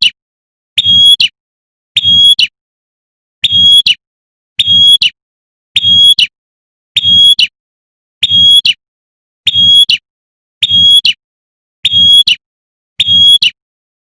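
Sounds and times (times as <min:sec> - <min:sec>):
bird whistle call: 0:00.8 - 0:01.4, 0:02.0 - 0:02.6, 0:03.4 - 0:04.0, 0:04.6 - 0:05.2, 0:05.8 - 0:06.3, 0:07.0 - 0:07.6, 0:08.2 - 0:08.8, 0:09.4 - 0:10.0, 0:10.6 - 0:11.2, 0:11.8 - 0:12.4, 0:13.0 - 0:13.6.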